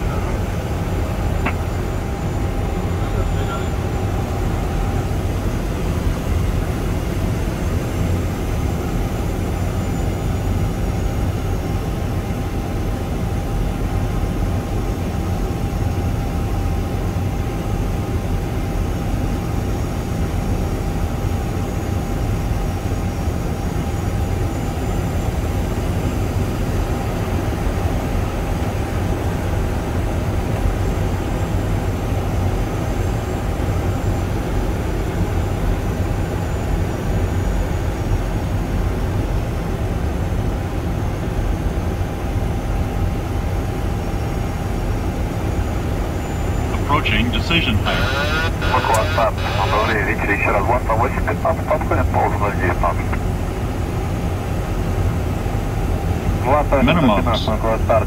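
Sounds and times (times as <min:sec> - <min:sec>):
faint steady whine: 0:00.0 - 0:30.0, 0:40.6 - 0:58.0
jet engine rumble: 0:00.0 - 0:58.0.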